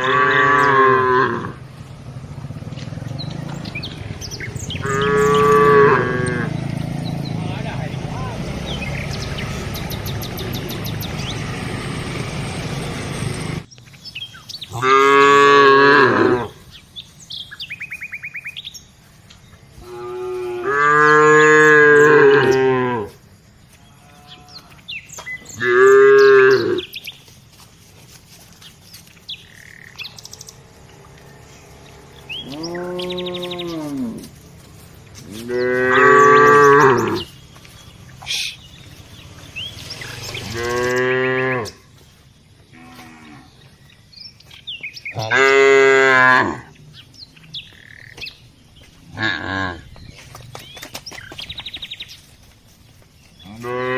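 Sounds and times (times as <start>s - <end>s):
cattle mooing: 0.0s - 1.6s, 4.6s - 6.7s, 14.7s - 16.6s, 19.8s - 23.2s, 25.6s - 26.9s, 30.9s - 34.4s, 35.3s - 37.3s, 40.0s - 41.8s, 42.7s - 43.6s, 45.2s - 46.7s, 49.1s - 49.9s, 53.5s - 53.9s.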